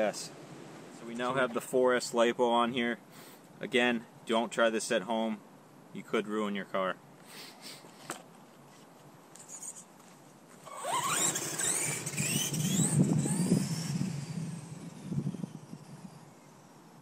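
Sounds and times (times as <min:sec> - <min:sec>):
electric motor whining: 0:10.7 - 0:16.4.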